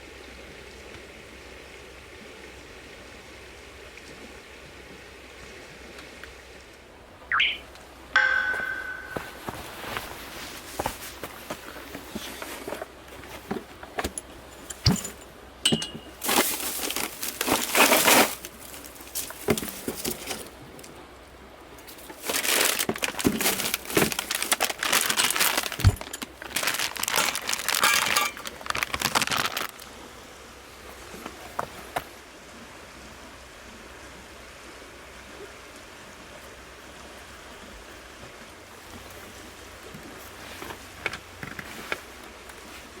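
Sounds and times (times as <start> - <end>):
crinkling and rustling: 9.4 - 15.3, 15.9 - 20.8, 21.8 - 29.9, 40.1 - 43.0.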